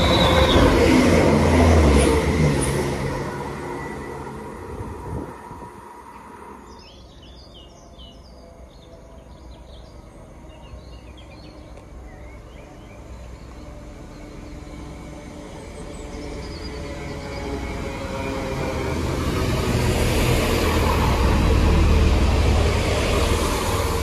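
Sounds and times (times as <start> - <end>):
vehicle approaching: 0.0 - 24.0.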